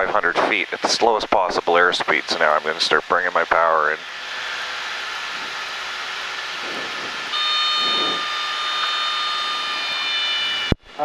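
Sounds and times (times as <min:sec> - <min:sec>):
airplane engine drone: 0:00.0 - 0:11.0
high whistle-like whine: 0:06.6 - 0:10.8.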